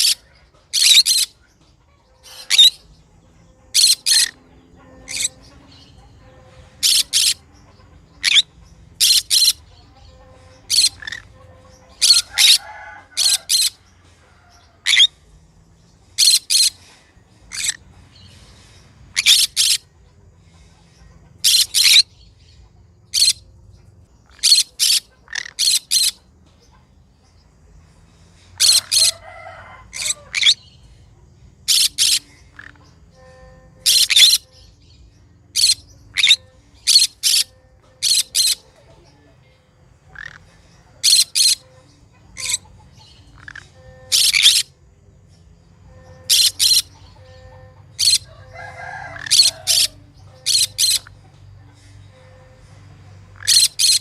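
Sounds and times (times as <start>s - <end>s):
parrot shrill calls: 0.8s - 1.3s, 2.2s - 2.8s, 3.7s - 4.4s, 6.8s - 7.4s, 8.2s - 9.6s, 10.6s - 13.8s, 14.8s - 15.1s, 16.2s - 16.8s, 24.3s - 26.2s, 28.6s - 30.7s, 31.7s - 34.5s, 35.6s - 38.7s, 40.1s - 41.6s, 42.4s - 42.7s, 43.3s - 44.7s, 46.2s - 51.1s, 53.4s - 54.0s.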